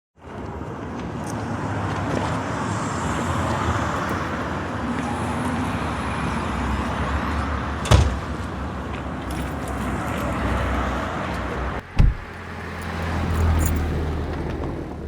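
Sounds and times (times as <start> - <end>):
road vehicle noise: 0.2 - 15.0
sharp knock: 12.0 - 12.3.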